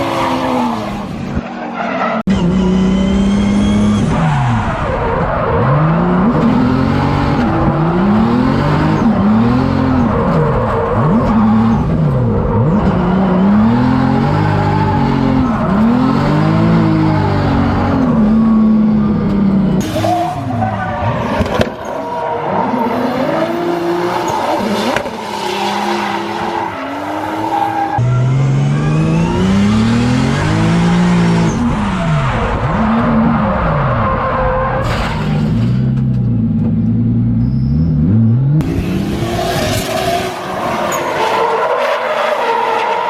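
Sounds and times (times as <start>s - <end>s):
car engines revving: 0.0s - 43.0s
tyre squeal: 37.4s - 38.0s.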